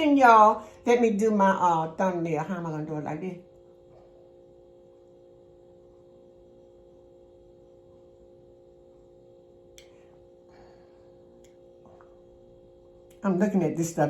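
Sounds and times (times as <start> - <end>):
faint room hum: 0.0 - 14.0
small click: 9.8 - 10.0.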